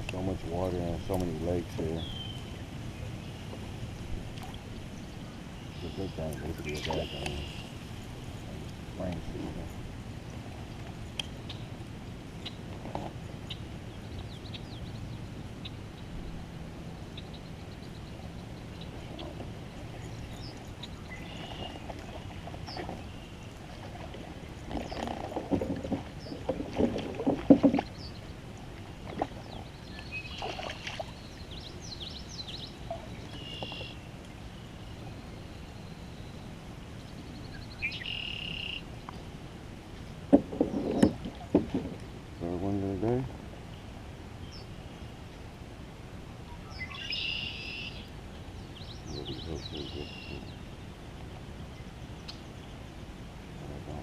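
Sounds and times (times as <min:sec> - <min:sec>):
steady low background noise: 0:00.0 - 0:54.0
gear knocking in boat: 0:24.6 - 0:28.0, 0:40.3 - 0:42.0.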